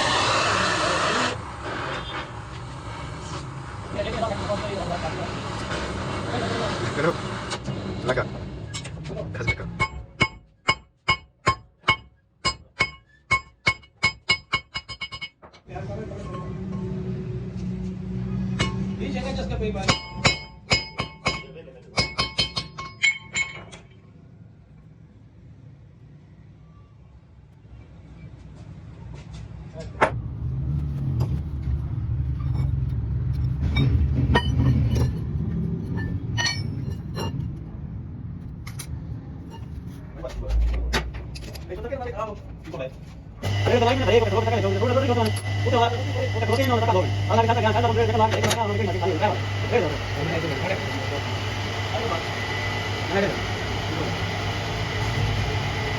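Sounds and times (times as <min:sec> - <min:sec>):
hammer striking steel: 0:08.8 - 0:15.4, 0:18.5 - 0:19.0, 0:19.8 - 0:23.9, 0:33.6 - 0:35.3, 0:35.9 - 0:37.4
machine humming: 0:43.4 - 0:55.9.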